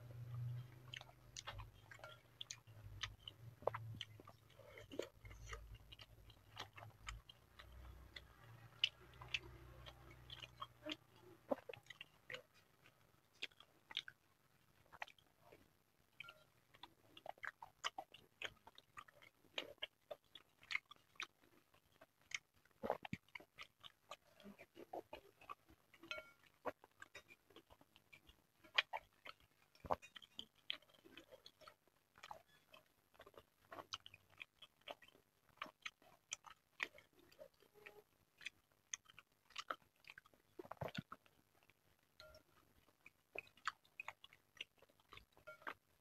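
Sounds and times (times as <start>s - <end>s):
wet chewing and mouth smacks: 0.1s - 46.0s.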